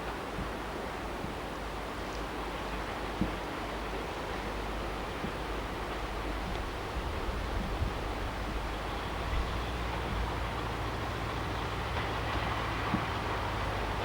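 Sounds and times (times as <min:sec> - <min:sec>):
diesel locomotive engine rumbling: 0:00.0 - 0:14.0.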